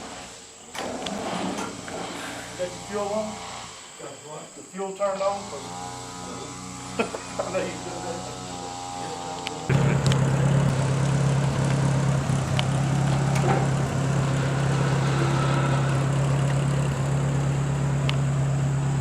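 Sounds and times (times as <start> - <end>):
tractor engine idling: 8.6 - 19.0.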